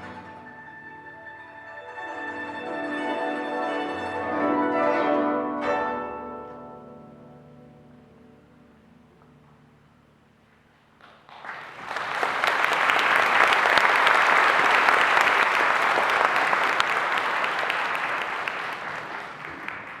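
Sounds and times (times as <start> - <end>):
audience applauding: 11.0 - 20.0.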